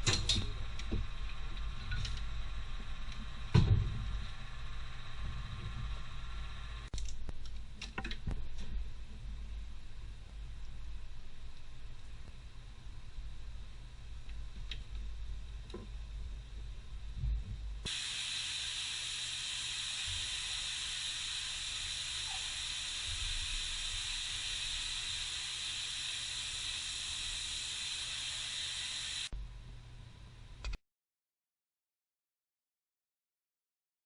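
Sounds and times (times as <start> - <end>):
steady hiss: 17.8 - 29.3.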